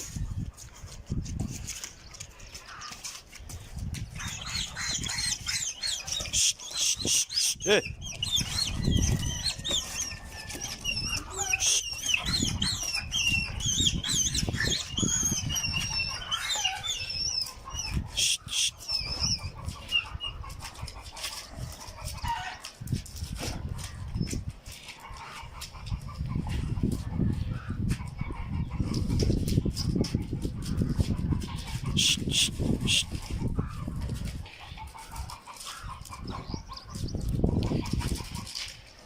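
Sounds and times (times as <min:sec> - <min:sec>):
birds chirping: 0:01.4 - 0:22.4, 0:30.6 - 0:38.6.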